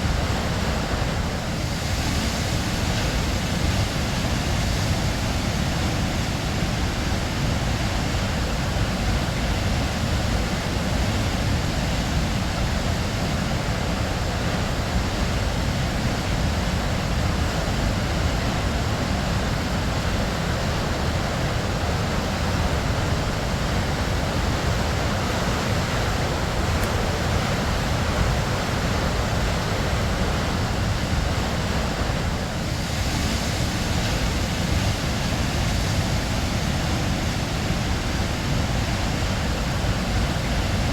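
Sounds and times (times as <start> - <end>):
waterfall rushing: 12.4 - 40.5.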